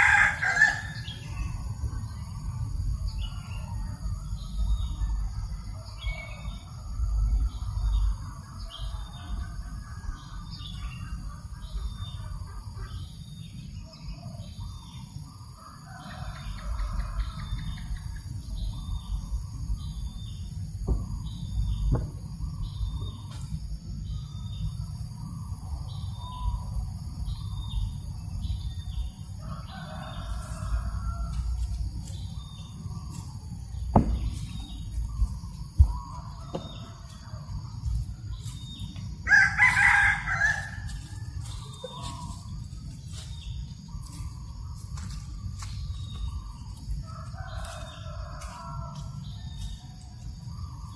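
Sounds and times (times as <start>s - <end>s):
rooster crowing: 0.0s - 1.3s, 29.4s - 31.6s, 39.2s - 42.4s, 47.0s - 49.1s
low wind rumble: 30.7s - 39.2s.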